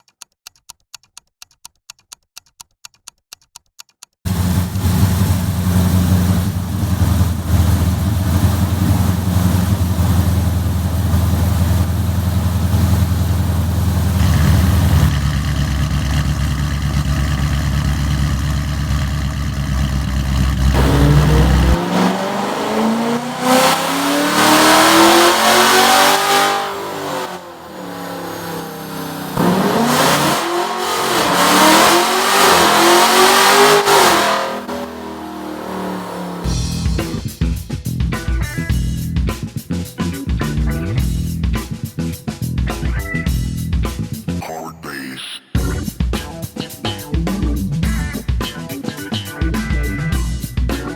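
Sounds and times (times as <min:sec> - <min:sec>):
faint regular clicks: 0:00.0 - 0:04.2
car engine revving: 0:04.3 - 0:36.8
car engine starting and idling: 0:04.3 - 0:36.9.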